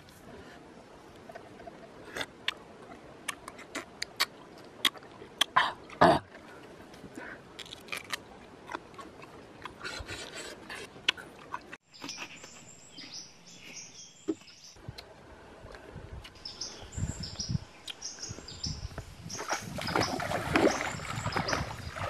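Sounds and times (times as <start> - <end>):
crunchy chewing of cucumber: 7.6 - 12.6
birds chirping: 11.9 - 14.8, 16.3 - 22.0.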